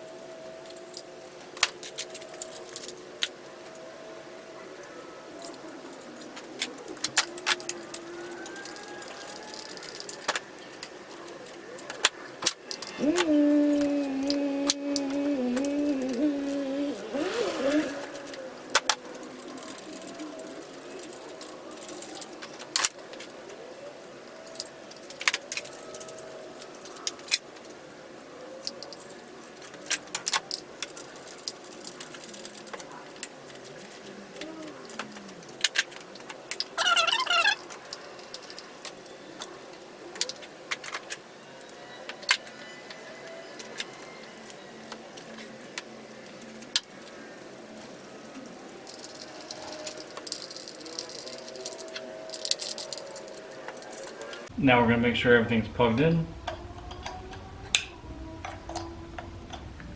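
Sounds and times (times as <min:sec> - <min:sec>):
metal hand tools clinking: 0:28.7 - 0:54.5.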